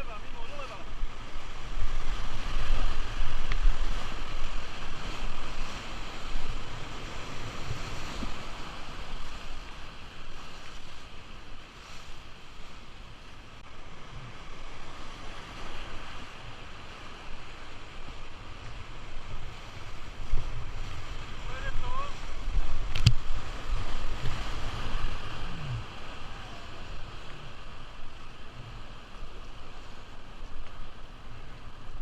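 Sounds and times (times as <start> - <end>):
river water rushing: 0.0 - 32.0
wind buffeting microphone: 0.8 - 11.0, 14.0 - 32.0.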